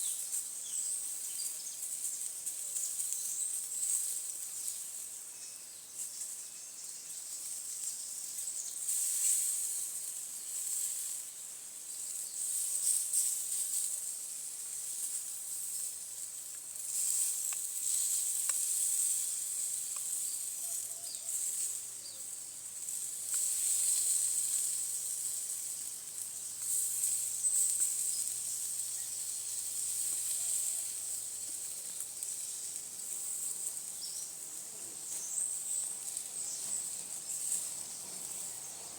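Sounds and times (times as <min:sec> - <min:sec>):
insects buzzing: 0:19.7 - 0:38.9.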